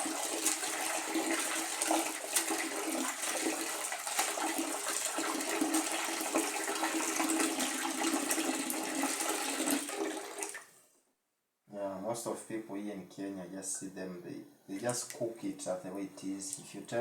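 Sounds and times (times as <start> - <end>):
water running and splashing: 0.0 - 10.6.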